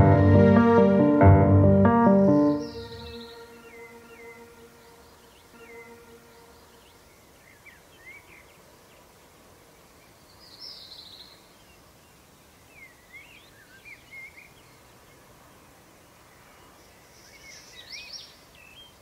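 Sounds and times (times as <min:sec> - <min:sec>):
birds chirping: 0:00.0 - 0:09.1.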